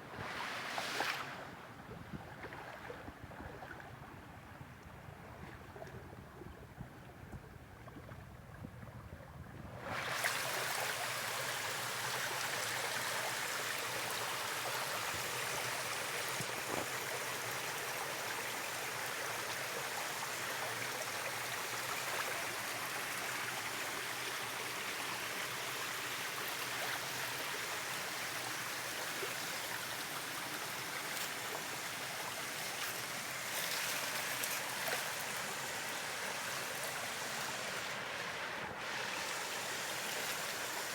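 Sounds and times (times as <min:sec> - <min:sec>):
stream water rushing: 0:09.8 - 0:40.9.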